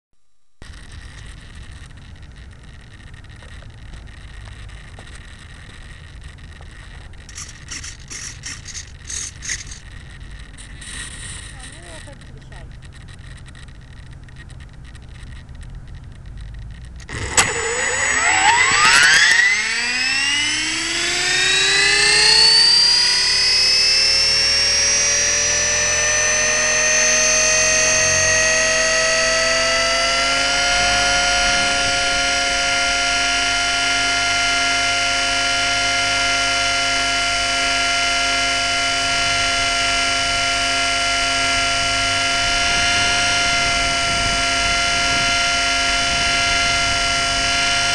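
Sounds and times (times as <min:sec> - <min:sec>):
helicopter motor and gear whine: 0:00.6 - 0:47.9.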